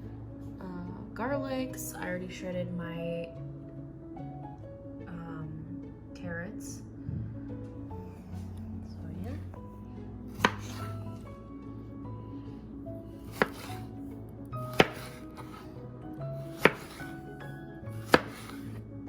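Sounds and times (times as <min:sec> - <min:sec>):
background music: 0:00.0 - 0:19.0
knife chopping on cutting board: 0:10.3 - 0:11.0, 0:13.2 - 0:13.9, 0:14.6 - 0:15.7, 0:16.4 - 0:17.2, 0:18.0 - 0:18.8.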